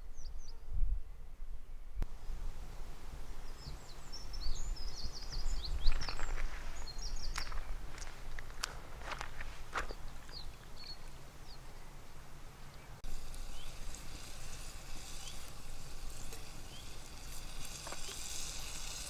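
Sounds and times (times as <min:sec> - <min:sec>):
steady hiss: 0:02.0 - 0:19.0
bird chirps: 0:03.4 - 0:07.8.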